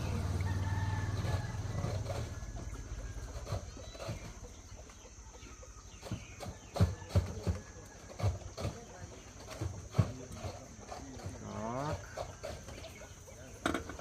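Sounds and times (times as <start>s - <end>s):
motorcycle engine moving away: 0.0s - 5.0s
faint chicken calls: 0.0s - 9.8s.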